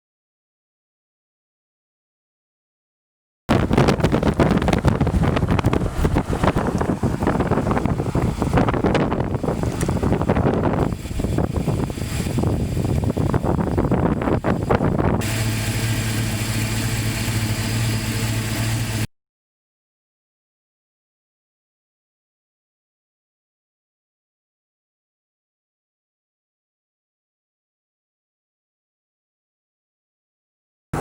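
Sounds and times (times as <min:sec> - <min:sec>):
wind buffeting microphone: 0:03.5 - 0:15.6
low hum: 0:03.5 - 0:19.1.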